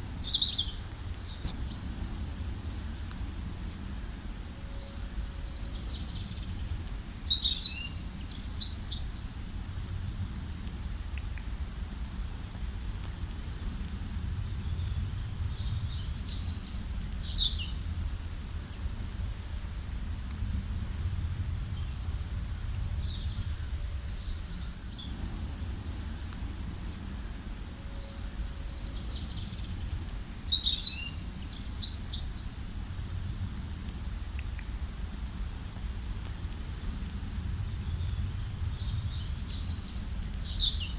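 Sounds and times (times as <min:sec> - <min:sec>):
songbird chirping: 0:00.0 - 0:09.6, 0:21.5 - 0:32.8
low background rumble: 0:00.0 - 0:40.9.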